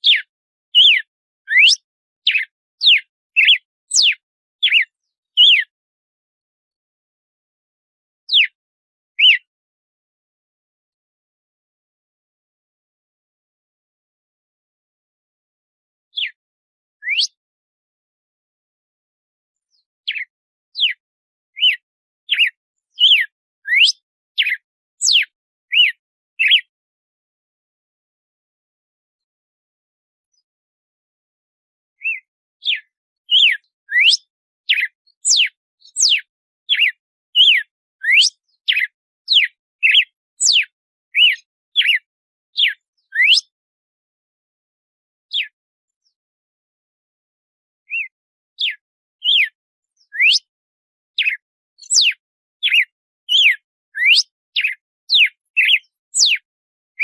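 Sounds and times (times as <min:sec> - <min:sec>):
bird singing whistled notes: 0:00.0 - 0:05.7, 0:08.3 - 0:08.6, 0:09.2 - 0:09.5, 0:16.2 - 0:16.4, 0:17.0 - 0:17.4, 0:19.6 - 0:26.7, 0:32.0 - 0:43.6, 0:45.3 - 0:46.2, 0:47.9 - 0:50.5, 0:51.2 - 0:56.4.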